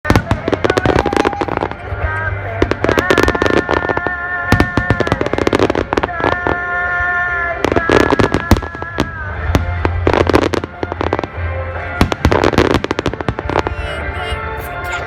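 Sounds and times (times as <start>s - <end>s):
fireworks bursting: 0.0s - 6.4s
song playing: 0.1s - 4.5s, 9.4s - 15.0s.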